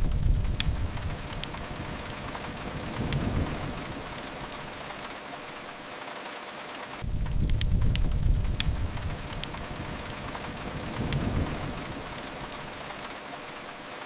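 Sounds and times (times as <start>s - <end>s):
low rumble: 0.0s - 5.0s, 7.0s - 13.2s
fireplace fire crackles: 0.0s - 14.0s
rain hiss: 0.0s - 14.0s.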